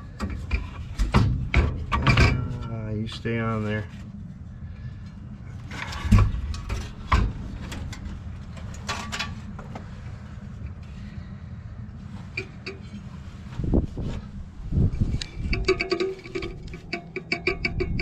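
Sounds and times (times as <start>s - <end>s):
heavy metal clunk: 0.0s - 2.7s, 5.7s - 9.8s
steady low hum: 0.0s - 18.0s.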